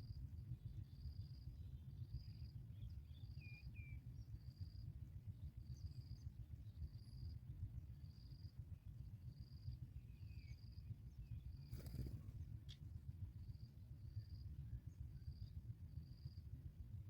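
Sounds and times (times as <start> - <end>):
insect chirping: 2.0 - 4.9, 5.6 - 12.3, 15.1 - 16.5.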